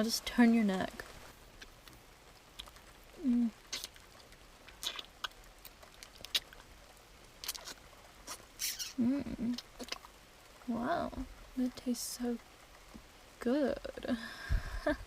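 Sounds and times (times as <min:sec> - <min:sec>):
wet mouth clicks and sucking: 0:02.6 - 0:02.8, 0:03.7 - 0:06.7, 0:07.4 - 0:10.1
person humming: 0:03.2 - 0:03.6, 0:08.9 - 0:09.6.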